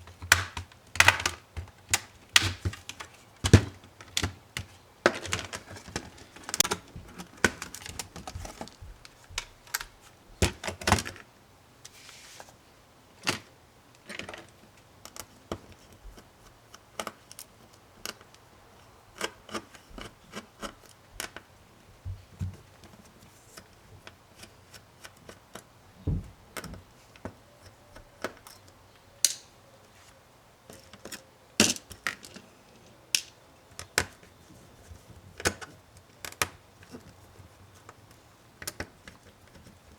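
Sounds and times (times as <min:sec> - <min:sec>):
plastic parts snapping: 0:00.0 - 0:08.8, 0:28.0 - 0:29.5, 0:33.1 - 0:34.3
laptop parts clicking and tapping: 0:00.0 - 0:11.2, 0:14.0 - 0:21.5, 0:23.6 - 0:29.5, 0:33.2 - 0:34.3, 0:35.4 - 0:39.9.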